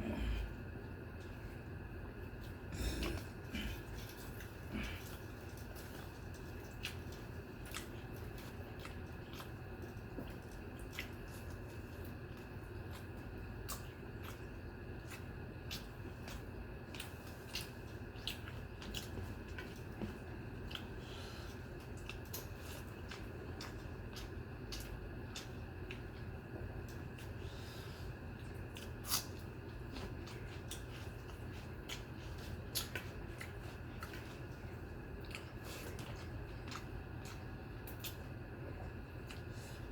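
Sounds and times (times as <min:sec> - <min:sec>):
person chewing food: 0:00.0 - 0:39.9
steady low hum: 0:00.0 - 0:39.9
wet eating squelching: 0:00.0 - 0:39.9.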